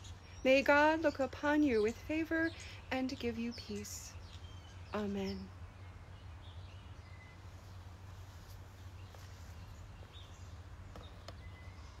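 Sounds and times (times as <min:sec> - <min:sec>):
faint bird chirps: 0:08.8 - 0:12.0.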